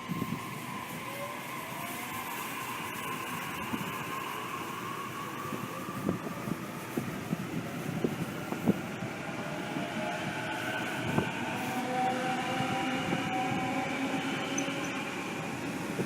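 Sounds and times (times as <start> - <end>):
electric train motor whine: 0.0 - 16.0
wheels rumbling on rail: 0.0 - 16.0.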